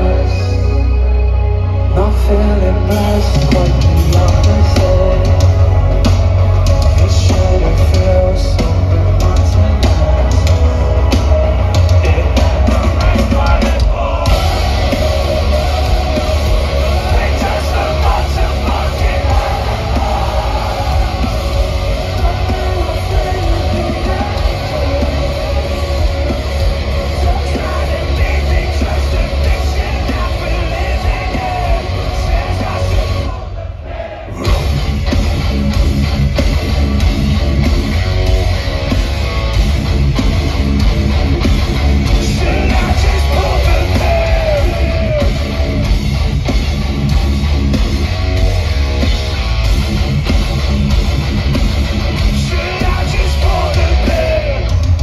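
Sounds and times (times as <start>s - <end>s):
person singing: 0.0s - 34.8s, 42.0s - 45.9s, 52.3s - 55.0s
bass guitar: 0.0s - 55.0s
distorted guitars: 0.0s - 55.0s
pounding drums: 3.2s - 55.0s.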